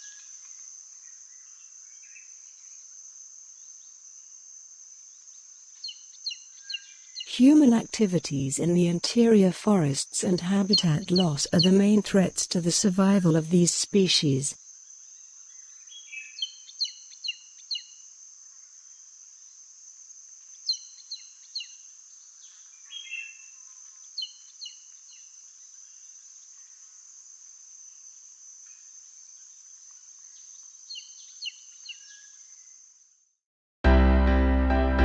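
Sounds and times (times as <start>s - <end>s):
insects buzzing: 14.6s - 33.2s.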